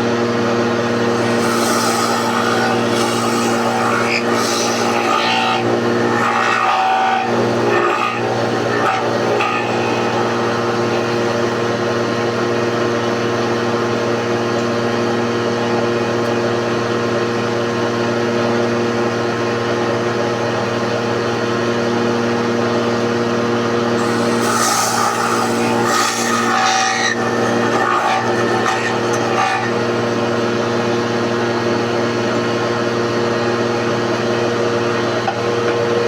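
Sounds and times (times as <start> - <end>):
electric planer motor humming: 0.0 - 14.8, 23.0 - 32.7.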